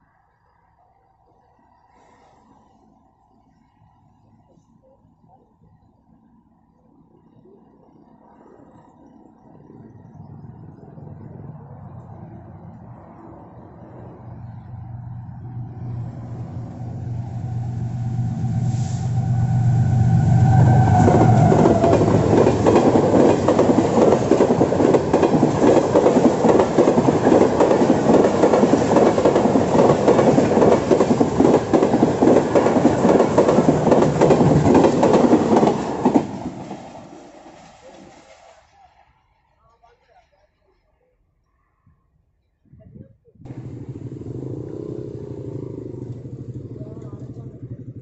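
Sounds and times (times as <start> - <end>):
locomotive passing: 9.6 - 39.2, 43.5 - 48.0.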